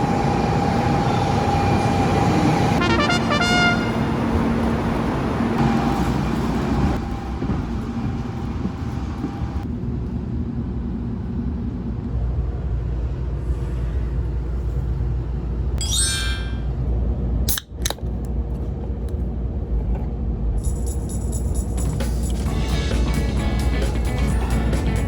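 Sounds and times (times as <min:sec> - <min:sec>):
train rumbling: 0:00.0 - 0:15.8, 0:16.6 - 0:25.0.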